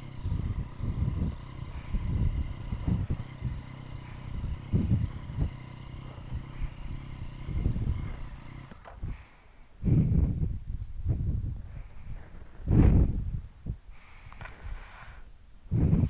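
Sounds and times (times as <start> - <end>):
motorcycle engine running low revs: 0.0 - 10.5.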